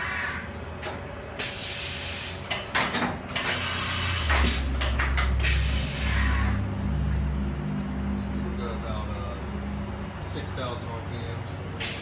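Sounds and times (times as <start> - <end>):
low machine hum: 0.0 - 12.0
hissing air bursts: 1.4 - 2.5, 3.4 - 6.6, 11.8 - 12.0.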